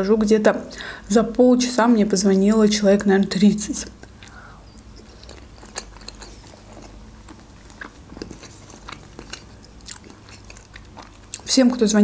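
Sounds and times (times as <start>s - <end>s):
chewing food close up: 4.0s - 12.0s.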